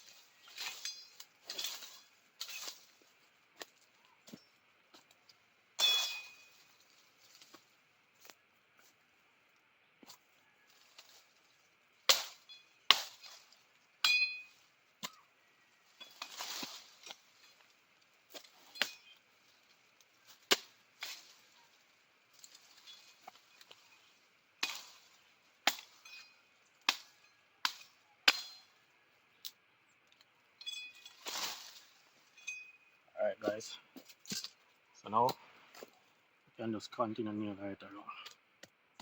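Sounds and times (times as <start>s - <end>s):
hammering with metallic ring: 14.0s - 14.6s.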